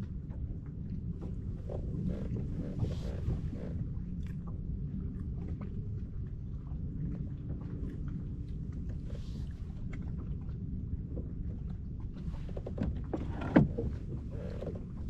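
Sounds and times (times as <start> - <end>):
water and wind rumble: 0.0 - 15.0
creak: 1.4 - 3.8, 12.3 - 15.0.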